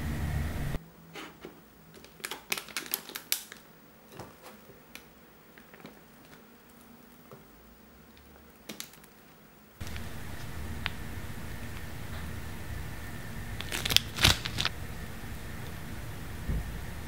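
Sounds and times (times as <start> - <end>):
steady background hiss: 0.0 - 17.0
plastic piping bag crinkling: 1.9 - 10.1, 13.5 - 14.7.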